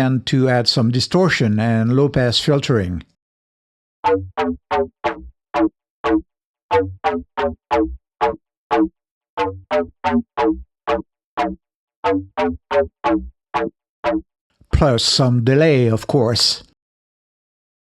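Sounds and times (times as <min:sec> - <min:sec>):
synthesized plucked bass riff: 0:04.0 - 0:14.2.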